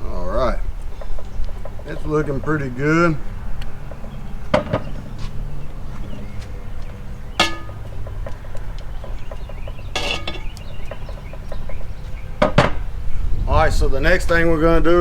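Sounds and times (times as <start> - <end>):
low outdoor rumble: 0.0 - 15.0
scraping rustle: 3.8 - 11.4
metal clink on cast iron: 7.4 - 8.1, 9.9 - 10.8.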